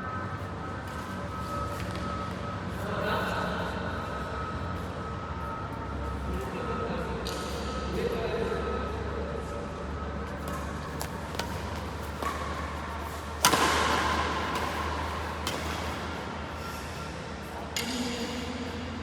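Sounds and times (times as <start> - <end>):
steady low hum: 0.0 - 19.0
rackets striking shuttlecock: 10.4 - 16.2.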